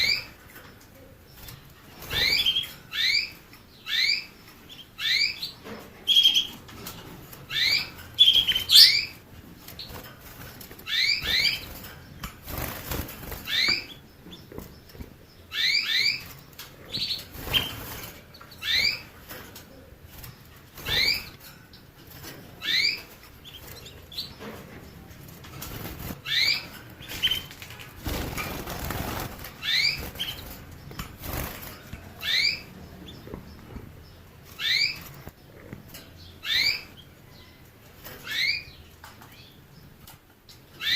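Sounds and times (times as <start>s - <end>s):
finch chirping: 0.0s - 40.9s
rustling bursts: 25.2s - 32.3s.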